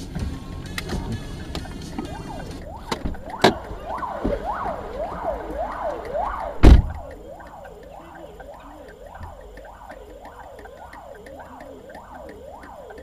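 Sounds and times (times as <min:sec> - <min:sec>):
siren yelping: 0:01.6 - 0:13.0
loud heavy thud: 0:06.4 - 0:07.1.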